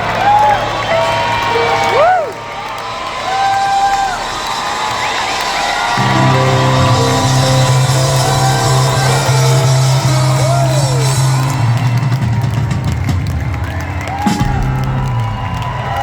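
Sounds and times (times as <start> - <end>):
crowd shouting and whooping: 0.0 - 16.0
rock band playing loudly: 6.0 - 15.6.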